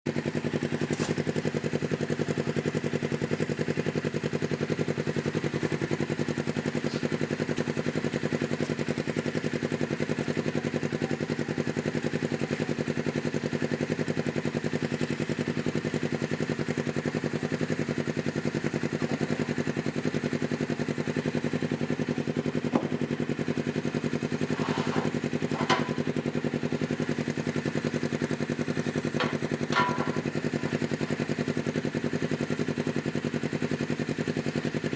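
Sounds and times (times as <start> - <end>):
engine idling: 0.1 - 34.9.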